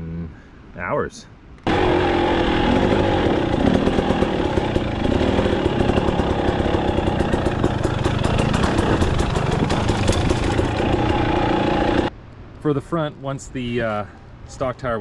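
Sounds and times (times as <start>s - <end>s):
two-stroke engine running: 1.7s - 12.1s.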